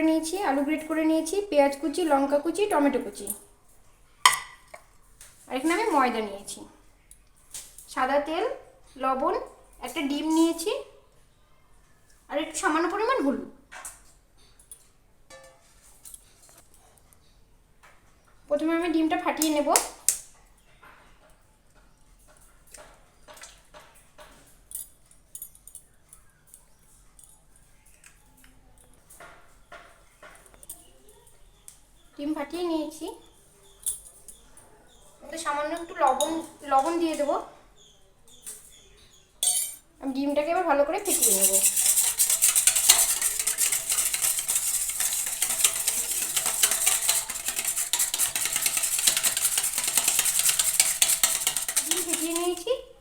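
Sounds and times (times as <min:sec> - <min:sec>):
eggshell cracking taps: 0:04.3 - 0:04.8
utensil beating egg in bowl: 0:41.0 - 0:52.7.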